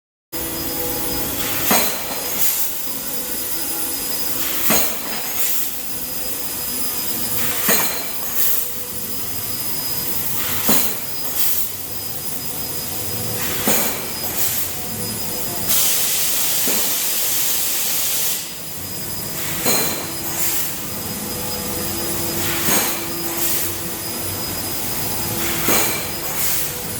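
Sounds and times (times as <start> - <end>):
laser cutter steady hiss: 0.4 - 26.9
sharp loud hiss bursts: 15.7 - 18.7.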